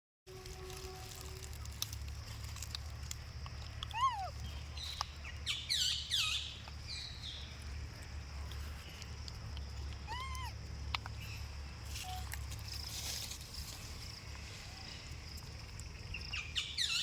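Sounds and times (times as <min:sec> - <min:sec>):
steady low hum: 0:00.3 - 0:16.6
high-pitched animal calls: 0:03.9 - 0:04.6, 0:10.0 - 0:10.6.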